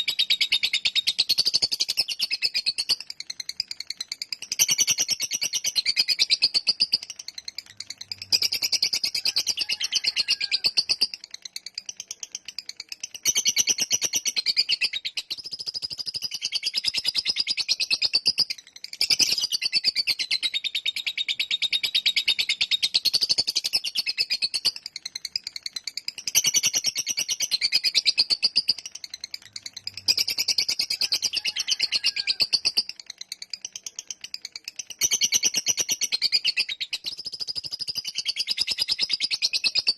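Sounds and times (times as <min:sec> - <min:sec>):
lovebird chattering trill: 0:00.0 - 0:39.9.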